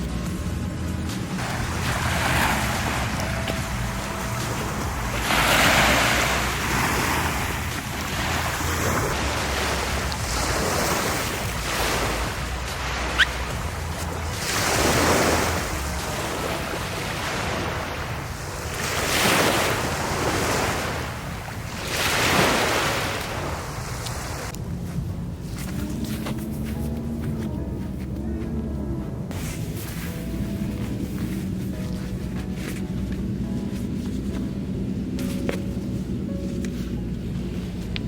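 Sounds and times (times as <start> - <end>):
sea waves breaking on beach: 1.3 - 24.6.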